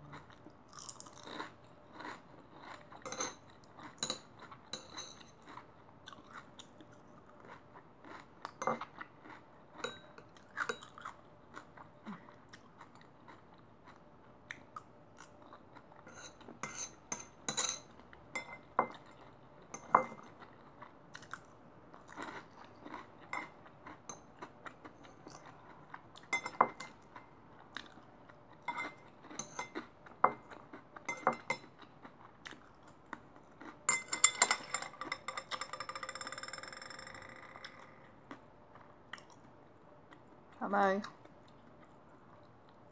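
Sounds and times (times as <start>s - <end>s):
close chewing and crunching: 0.0s - 16.6s, 20.2s - 33.9s.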